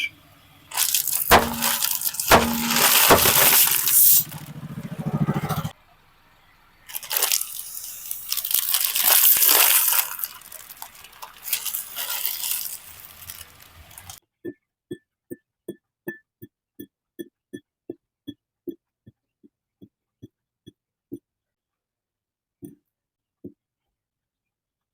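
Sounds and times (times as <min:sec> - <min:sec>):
loud crunching and crinkling: 0:00.6 - 0:04.8, 0:06.9 - 0:14.2.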